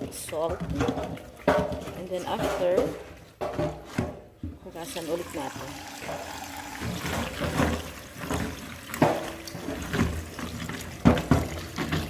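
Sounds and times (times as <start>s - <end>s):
tap water running: 4.7s - 12.0s.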